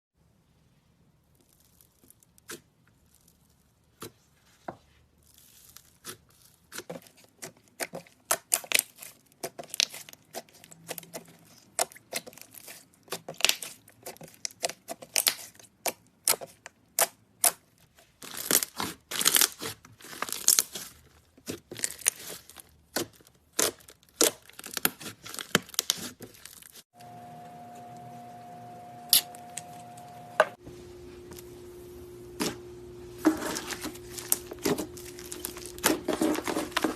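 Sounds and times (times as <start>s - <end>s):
steady hum with held tone: 27.0s - 36.9s.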